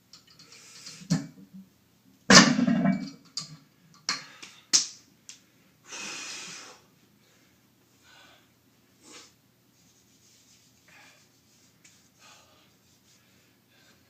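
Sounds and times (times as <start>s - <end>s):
person breathing hard: 5.8s - 9.4s, 12.1s - 14.0s.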